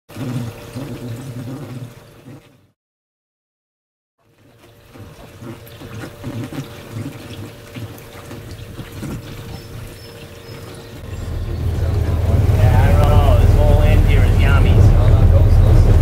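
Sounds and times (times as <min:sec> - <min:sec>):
water splashing and running: 0:00.1 - 0:02.7, 0:04.2 - 0:16.0
steady hum: 0:05.6 - 0:16.0.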